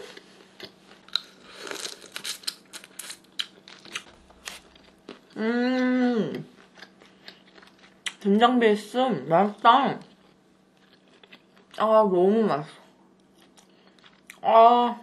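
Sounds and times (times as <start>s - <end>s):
wet chewing and smacking: 0.1s - 5.4s, 6.4s - 8.2s, 10.0s - 11.8s, 13.1s - 14.4s
person humming mmm: 5.3s - 6.5s.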